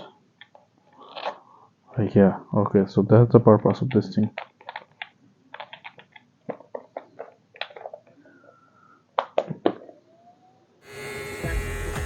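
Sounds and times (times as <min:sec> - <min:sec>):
plastic parts clicking and tapping: 0:03.6 - 0:08.2
plastic parts snapping: 0:03.8 - 0:08.1.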